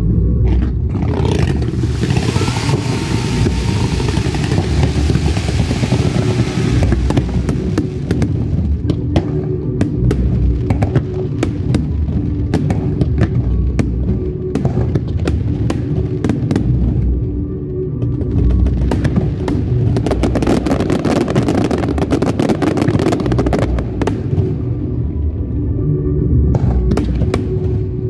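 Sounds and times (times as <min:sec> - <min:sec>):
music with heavy bass: 0:00.0 - 0:28.0
firework fountains hissing and crackling: 0:01.2 - 0:09.0, 0:18.8 - 0:24.5
firework shells bursting: 0:01.6 - 0:08.4.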